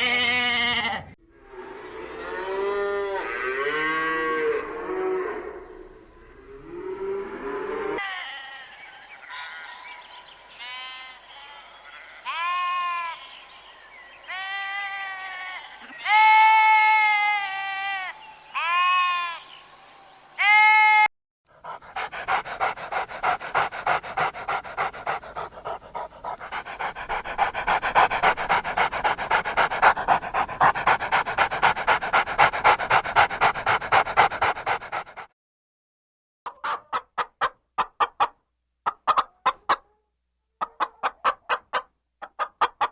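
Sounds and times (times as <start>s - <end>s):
dog panting: 21.5s - 35.4s.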